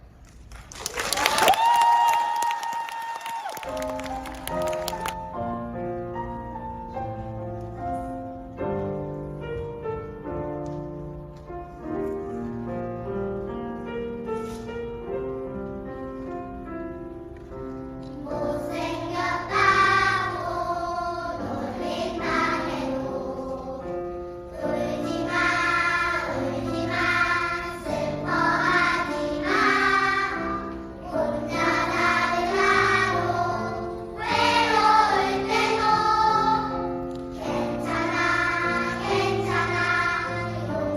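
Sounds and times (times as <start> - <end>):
choir singing: 18.2 - 40.9.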